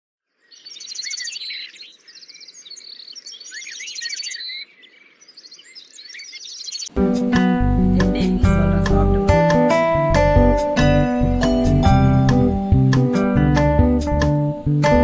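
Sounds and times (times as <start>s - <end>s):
birds chirping: 0.3s - 15.0s
rapid high bird trills: 0.4s - 7.0s.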